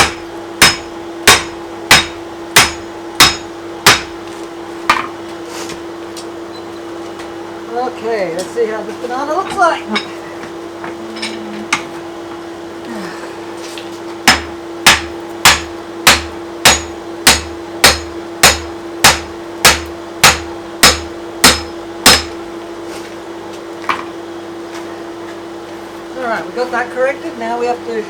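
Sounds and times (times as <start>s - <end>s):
hammer ringing on anvil: 0.0s - 4.1s, 14.3s - 22.4s
steady hum: 0.0s - 28.0s.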